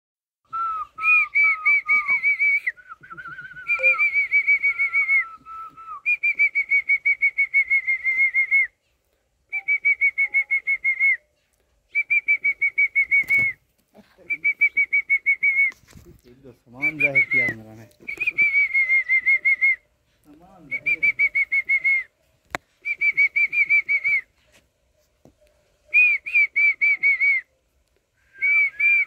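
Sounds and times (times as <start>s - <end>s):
bird whistling rapid notes: 3.7s - 4.4s.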